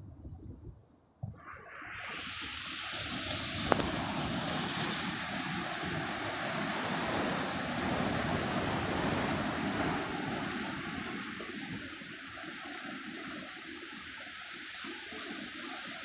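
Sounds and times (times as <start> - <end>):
sea wind: 0.0 - 16.0
ocean surf washing onto beach: 1.4 - 16.0.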